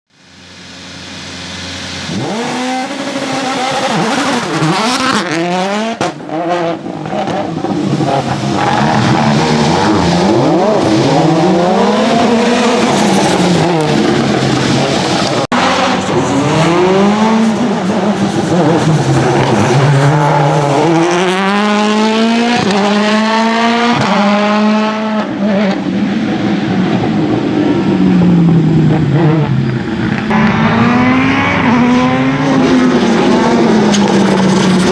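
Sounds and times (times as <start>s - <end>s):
rally car engine revving: 0.4s - 34.9s
gear upshifts: 10.2s - 22.0s.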